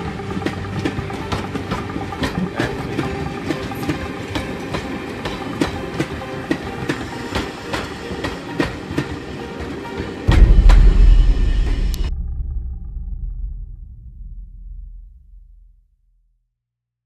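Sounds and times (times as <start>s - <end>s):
train wheels rumbling on track: 0.0s - 12.1s.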